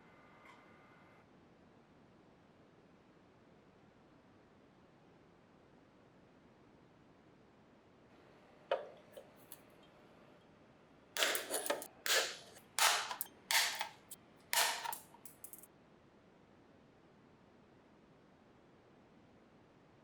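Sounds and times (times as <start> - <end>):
sharp click: 11.2 - 15.6.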